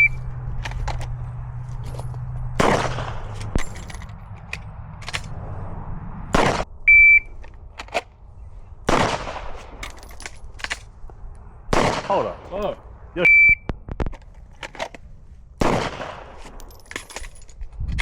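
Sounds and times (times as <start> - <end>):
gunshots: 2.6 - 3.7, 6.3 - 6.7, 8.8 - 9.8, 11.7 - 12.7, 15.6 - 16.5
short high beep: 6.9 - 7.3, 13.2 - 13.7.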